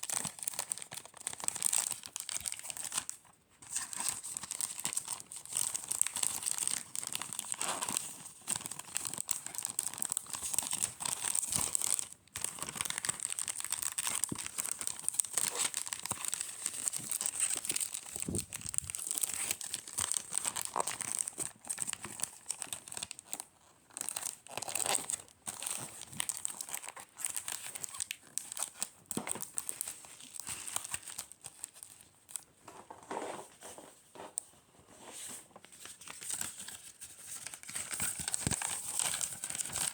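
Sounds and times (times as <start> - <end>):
packaging crinkling and rustling: 0.0 - 39.9
packaging tearing: 4.0 - 23.4, 37.4 - 39.9.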